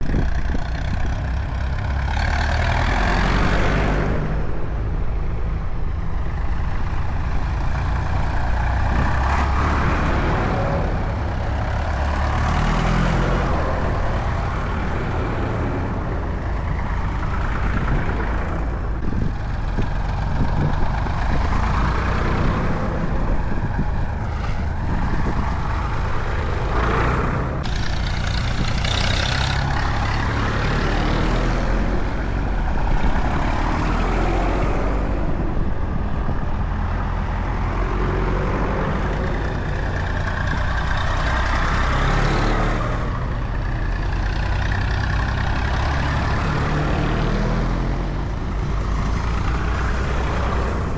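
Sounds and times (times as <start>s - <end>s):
tractor engines droning: 0.0s - 50.9s
tractors passing: 0.0s - 50.9s.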